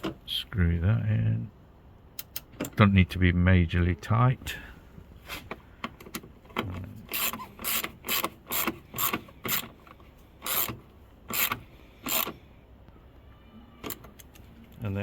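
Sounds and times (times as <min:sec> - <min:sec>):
socket ratchet clicking: 0:07.1 - 0:09.8, 0:10.4 - 0:12.4.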